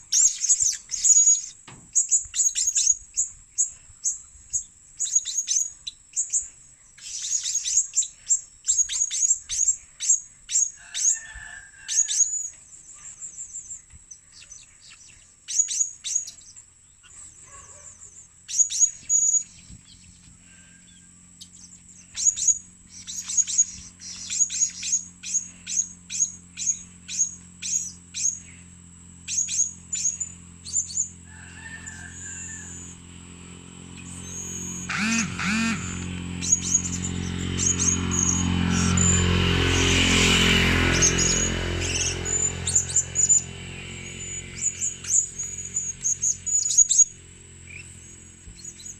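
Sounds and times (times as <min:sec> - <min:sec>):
parrot high sharp calls: 0:29.3 - 0:33.0, 0:40.8 - 0:47.1.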